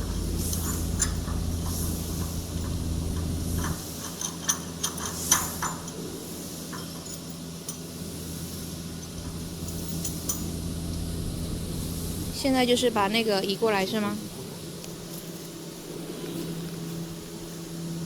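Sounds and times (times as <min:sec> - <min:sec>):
light metallic clinks: 0:00.0 - 0:07.9, 0:08.9 - 0:10.6
low mechanical hum: 0:00.0 - 0:18.0.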